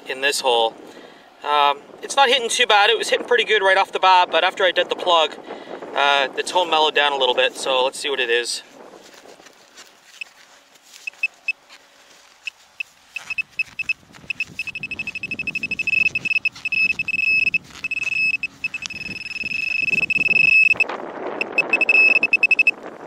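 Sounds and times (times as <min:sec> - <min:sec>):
soil scraping and rustling: 0:07.3 - 0:20.5
high-pitched pinpointer beeping: 0:11.1 - 0:11.6, 0:13.2 - 0:22.8.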